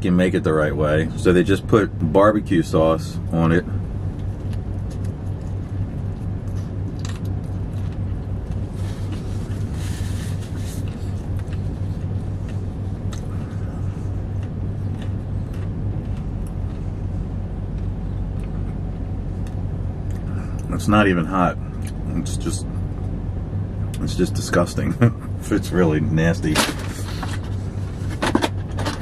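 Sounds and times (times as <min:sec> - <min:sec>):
car engine idling: 0:00.0 - 0:29.0
person chewing food: 0:04.1 - 0:20.7.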